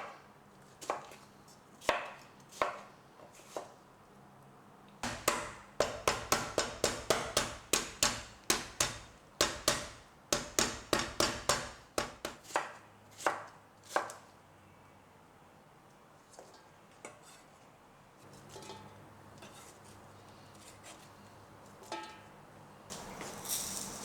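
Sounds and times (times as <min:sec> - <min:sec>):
knife chopping on cutting board: 0:05.0 - 0:14.2.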